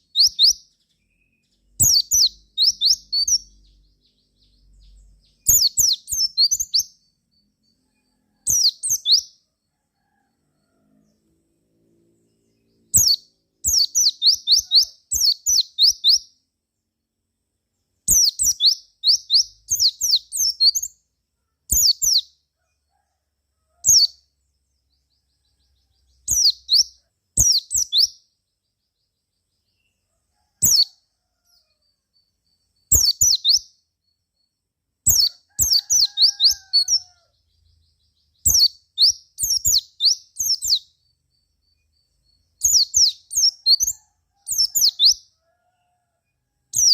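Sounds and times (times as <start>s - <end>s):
bird singing high chirps: 0.0s - 9.4s, 12.2s - 16.4s, 18.1s - 21.1s, 21.7s - 22.4s, 23.8s - 24.2s, 25.0s - 30.0s, 30.6s - 45.4s.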